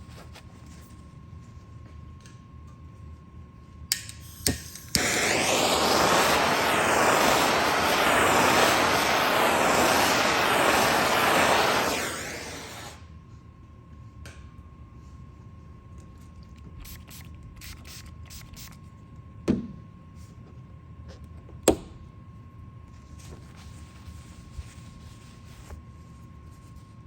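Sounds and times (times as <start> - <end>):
rush of blowing air: 5.0 - 13.0.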